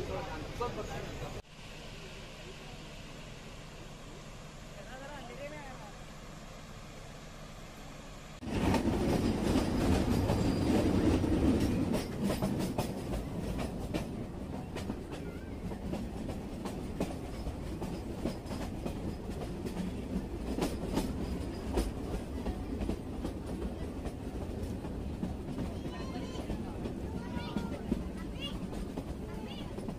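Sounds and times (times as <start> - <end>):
train rumbling: 0.0 - 29.9
wheels clicking over rail joints: 8.4 - 29.9.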